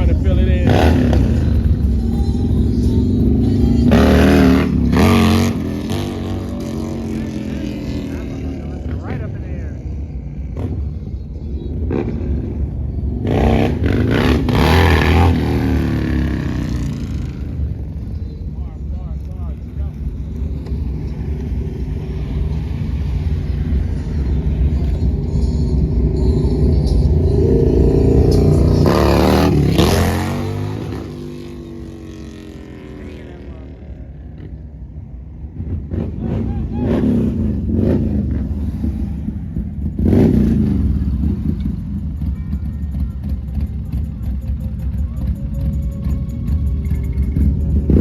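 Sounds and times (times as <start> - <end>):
vehicle engine revving: 0.0 - 11.0, 11.7 - 18.4, 19.0 - 42.3, 42.9 - 48.0
engine idle rumble: 39.2 - 48.0.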